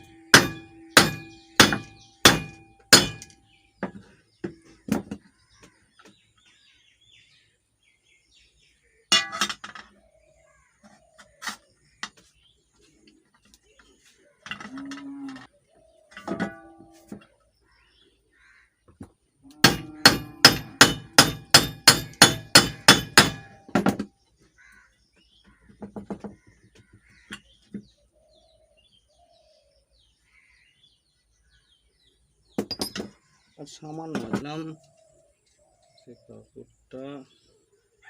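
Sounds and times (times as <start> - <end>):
hammer striking metal: 0.0 - 3.4, 19.6 - 24.0.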